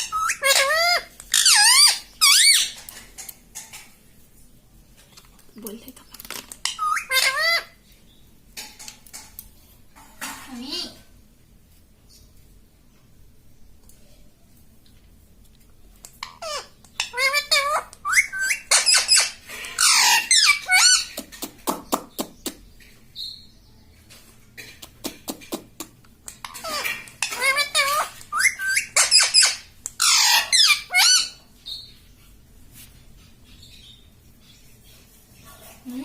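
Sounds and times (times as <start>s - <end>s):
parrot chattering squeaky calls: 0.0s - 2.9s, 6.6s - 7.8s, 16.2s - 21.4s, 26.4s - 31.9s.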